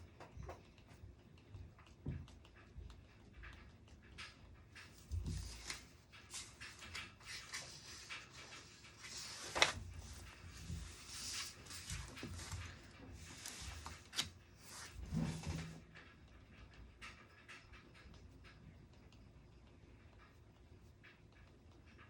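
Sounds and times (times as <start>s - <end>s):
writing and paper rustling: 0.0s - 16.1s.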